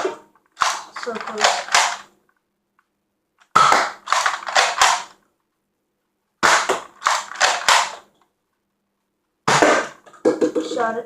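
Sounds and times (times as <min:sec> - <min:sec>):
toy blaster plastic clacks and pops: 0:00.0 - 0:02.1, 0:03.4 - 0:05.2, 0:06.4 - 0:08.1.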